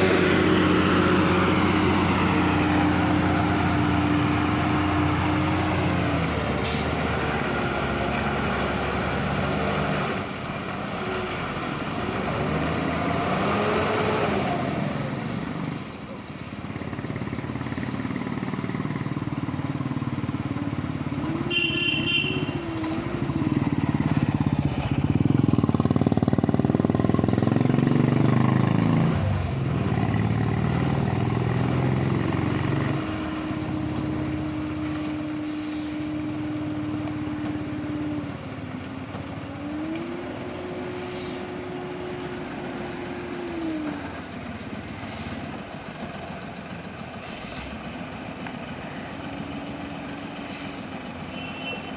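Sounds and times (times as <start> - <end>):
lorry engine running: 0.0 - 51.9
short horn toot: 21.4 - 23.0.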